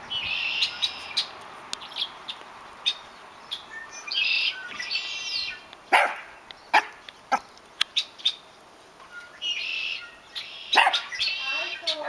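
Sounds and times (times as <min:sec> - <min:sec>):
small birds chirping: 0:00.0 - 0:12.0
dog barking: 0:05.9 - 0:07.5, 0:10.7 - 0:11.2.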